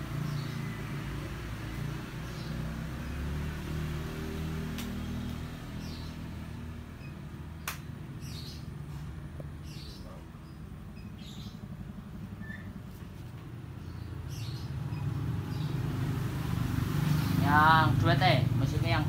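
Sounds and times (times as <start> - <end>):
bird chirping: 0.0 - 13.1, 13.7 - 16.3
sharp clicks: 7.6 - 7.9.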